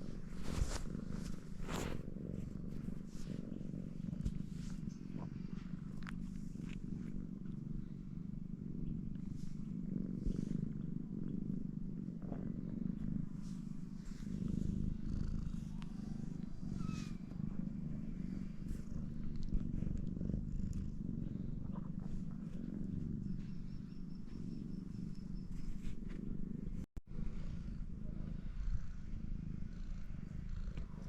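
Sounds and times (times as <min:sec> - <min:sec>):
cat purring: 0:00.0 - 0:31.0
cat chirp: 0:16.7 - 0:17.4.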